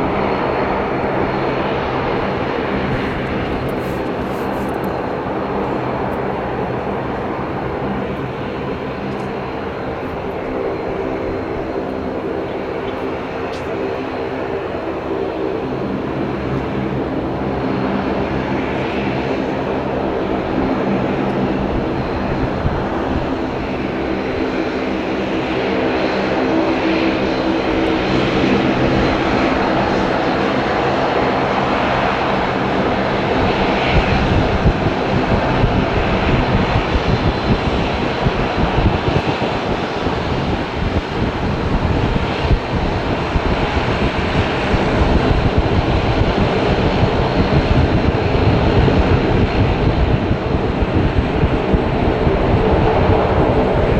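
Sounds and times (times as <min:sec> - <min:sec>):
jet engines passing: 0:00.0 - 0:53.9.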